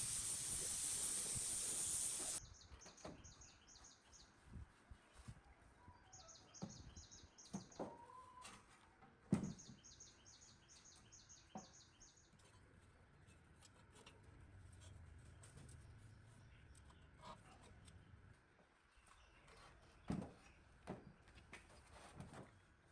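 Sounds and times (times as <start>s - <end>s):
faint rapid bird chirping: 0.0s - 4.0s.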